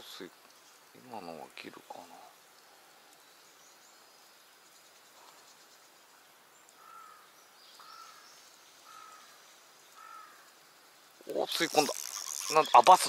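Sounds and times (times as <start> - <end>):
insects hissing: 0.0 - 13.0
bird calling: 6.7 - 10.6, 11.2 - 13.0.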